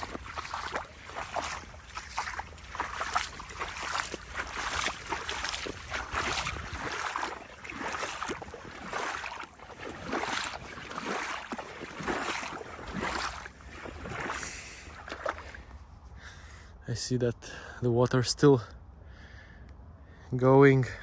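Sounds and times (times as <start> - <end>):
footsteps sloshing through water: 0.0 - 16.1.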